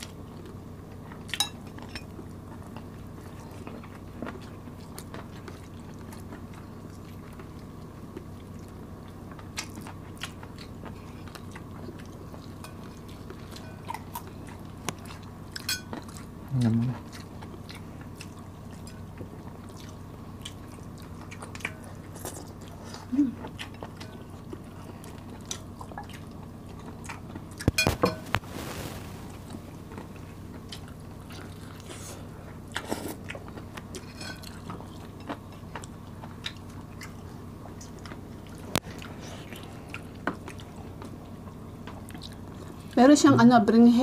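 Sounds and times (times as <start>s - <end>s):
close chewing and biting: 0.0s - 28.6s, 29.3s - 43.0s.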